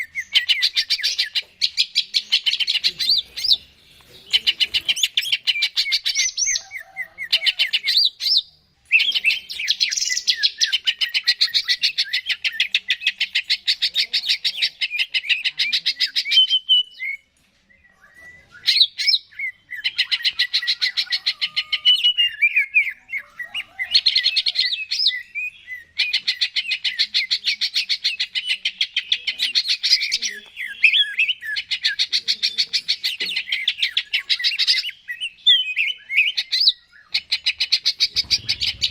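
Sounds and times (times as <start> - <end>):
bird singing chattering runs: 29.0 - 38.9.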